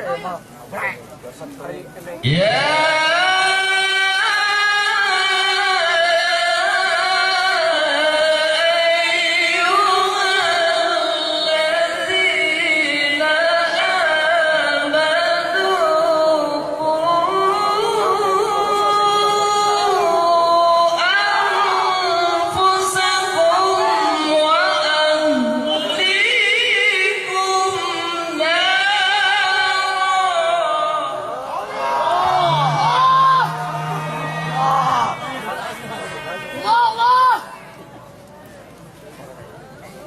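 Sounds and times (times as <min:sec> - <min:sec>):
person reciting melodically: 0:02.2 - 0:31.4.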